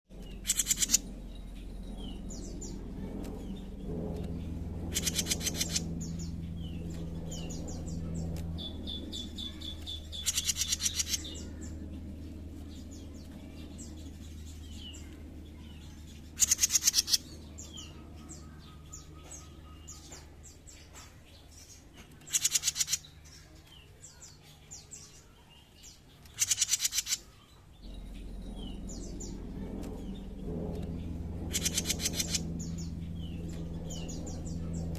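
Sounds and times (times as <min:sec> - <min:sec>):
low steady hum: 0:00.1 - 0:34.9
bird buzzing trill: 0:00.2 - 0:15.0, 0:15.6 - 0:18.5, 0:22.2 - 0:23.2, 0:26.3 - 0:34.9.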